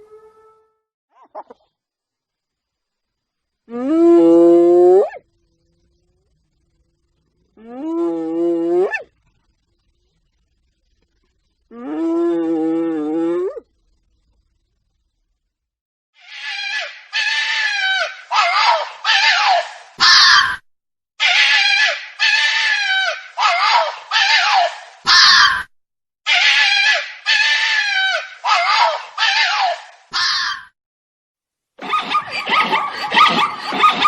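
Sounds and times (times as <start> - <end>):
bird harsh calls: 16.2 - 20.5, 31.8 - 34.0.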